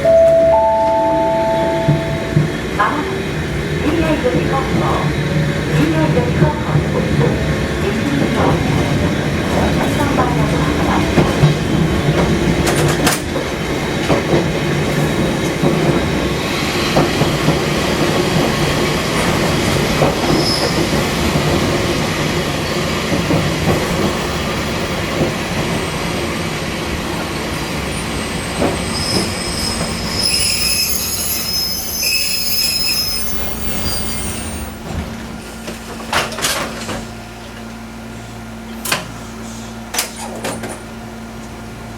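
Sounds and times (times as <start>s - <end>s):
train wheels rumbling: 0.0s - 37.9s.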